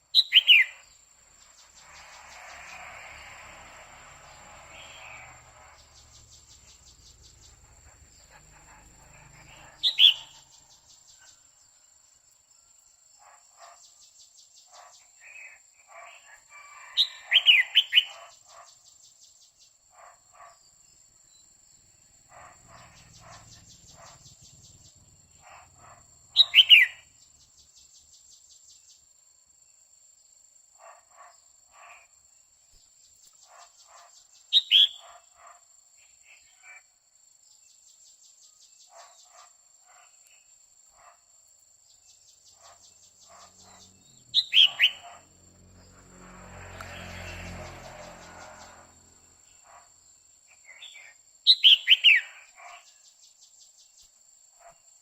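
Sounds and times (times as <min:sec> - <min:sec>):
insect trill: 0:00.1 - 0:15.0, 0:16.0 - 0:55.0
faint bird chirps: 0:04.3 - 0:12.7, 0:20.7 - 0:29.1, 0:42.0 - 0:45.2.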